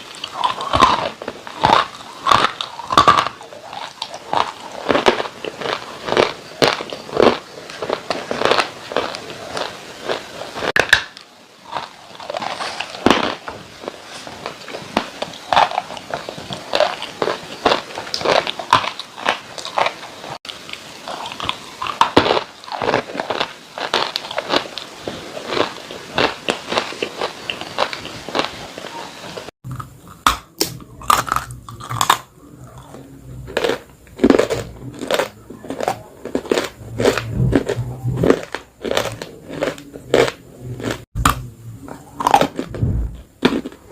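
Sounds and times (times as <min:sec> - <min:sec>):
dry clay crunching when chewed: 0:00.0 - 0:43.9
low hum: 0:29.7 - 0:43.9.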